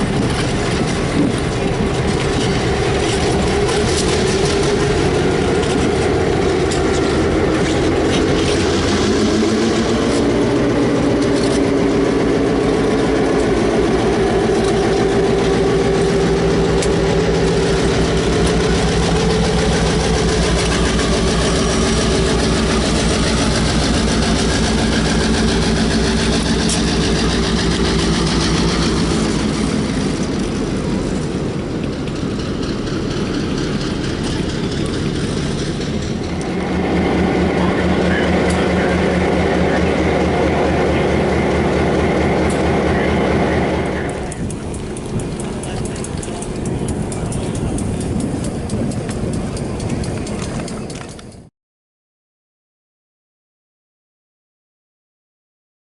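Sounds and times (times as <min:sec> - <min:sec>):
diesel locomotive engine running: 0:00.0 - 0:51.5.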